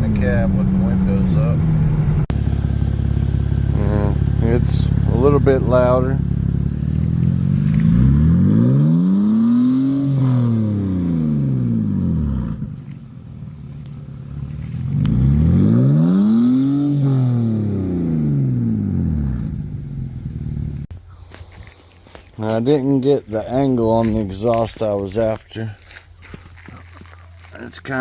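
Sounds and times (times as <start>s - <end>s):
car engine revving: 0.0s - 20.9s.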